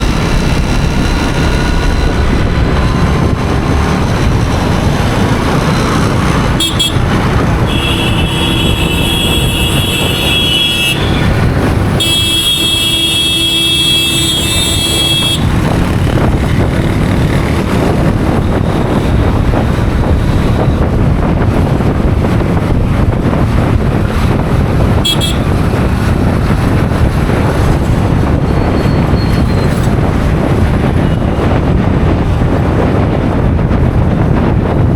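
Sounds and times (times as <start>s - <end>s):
motorcycle engine rumble: 0.0s - 34.9s
tyre road noise: 0.0s - 34.9s
wind noise: 0.0s - 34.9s
vehicle horn blasts: 6.6s - 15.7s, 25.0s - 25.7s.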